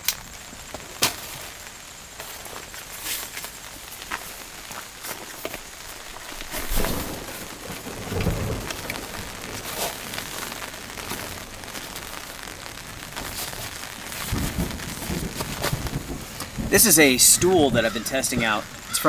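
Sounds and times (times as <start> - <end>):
steady rain: 0.0 - 19.0
thunder rumbling: 0.0 - 19.0.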